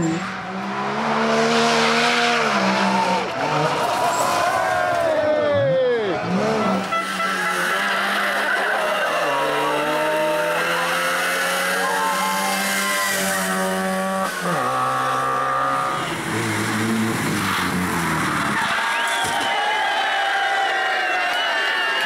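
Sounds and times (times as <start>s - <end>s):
rally car engines revving hard: 0.0s - 19.3s.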